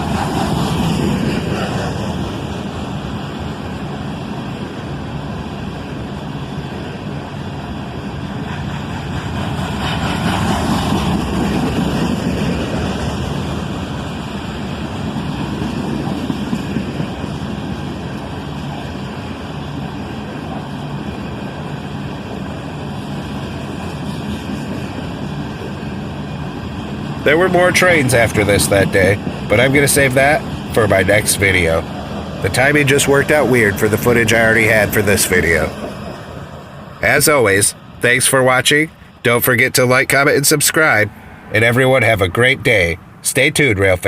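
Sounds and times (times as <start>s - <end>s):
freight cars rumbling on rails: 0.0s - 44.0s.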